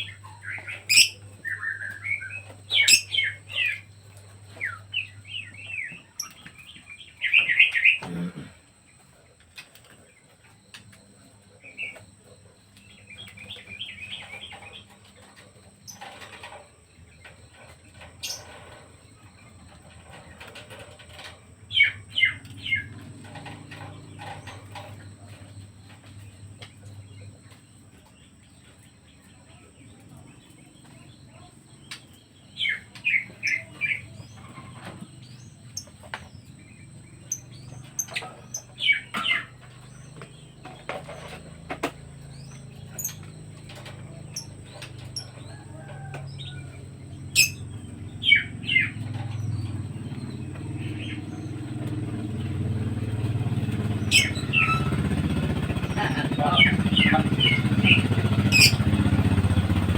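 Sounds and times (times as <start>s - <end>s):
birds chirping: 0.0s - 59.9s
low engine hum: 32.5s - 59.9s.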